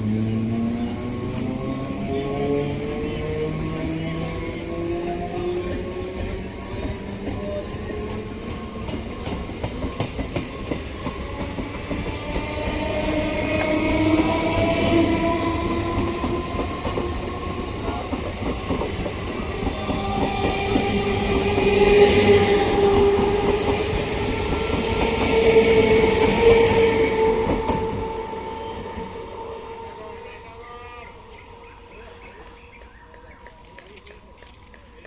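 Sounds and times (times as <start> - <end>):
train rumble and wheel clatter: 0.0 - 35.0.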